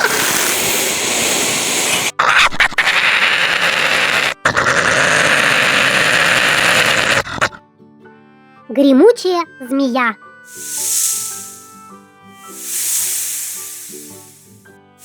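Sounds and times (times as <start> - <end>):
badger hissing growl: 0.0 - 7.6, 10.5 - 11.8, 12.4 - 14.6.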